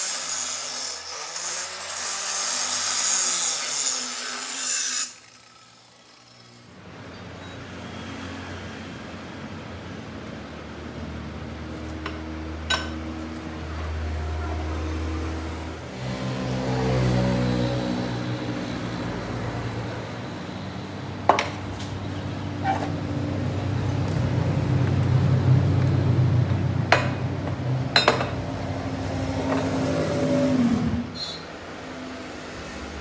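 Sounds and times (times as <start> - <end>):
metallic knocks and clanks: 26.9 - 28.5.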